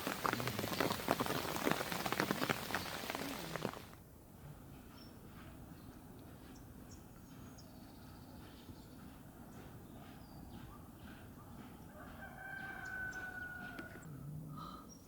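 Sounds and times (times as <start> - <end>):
rain hissing: 0.0 - 4.0
water drips ticking: 0.0 - 4.0
distant rooster crowing: 11.8 - 14.2.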